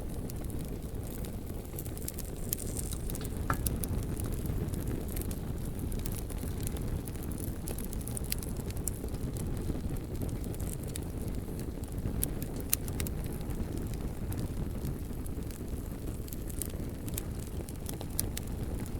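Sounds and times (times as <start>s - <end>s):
burning logs crackling and popping: 0.0s - 18.9s
low rumble of flames: 0.0s - 18.9s.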